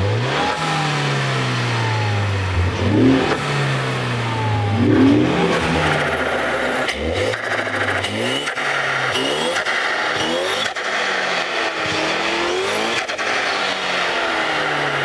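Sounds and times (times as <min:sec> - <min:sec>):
car engine revving: 0:00.0 - 0:15.0
loud engine intake noise: 0:00.2 - 0:15.0.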